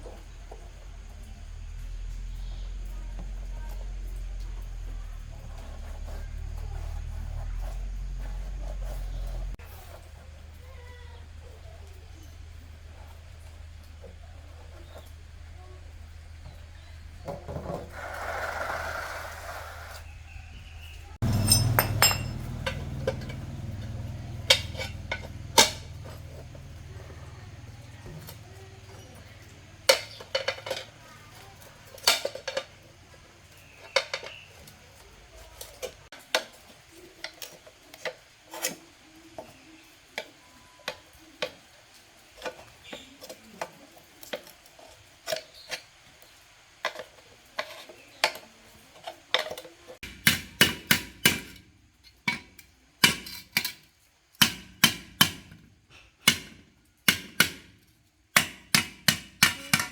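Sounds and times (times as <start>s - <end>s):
ringing hammer blows: 21.2s - 24.9s
metal tools clinking on metal: 21.2s - 26.9s, 27.5s - 34.7s.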